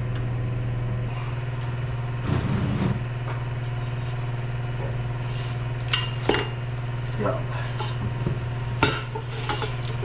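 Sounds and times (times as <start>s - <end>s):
motor humming: 0.0s - 10.0s
metal parts clattering: 8.8s - 10.0s.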